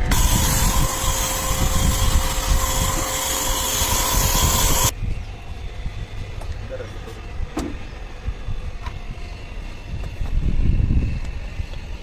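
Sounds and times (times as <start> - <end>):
pump humming: 0.0 - 4.9.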